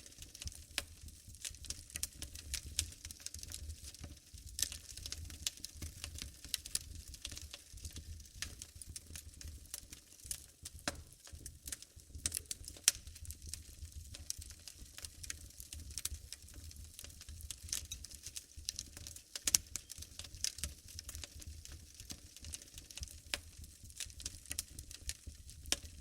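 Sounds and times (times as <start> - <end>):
wood fire crackling: 0.0 - 26.0
fire pops: 10.3 - 26.0.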